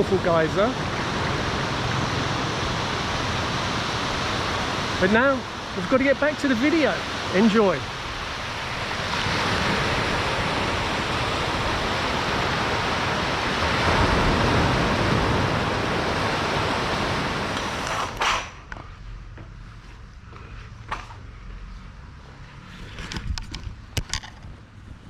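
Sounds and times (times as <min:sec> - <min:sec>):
ocean waves washing on beach: 0:00.0 - 0:18.4.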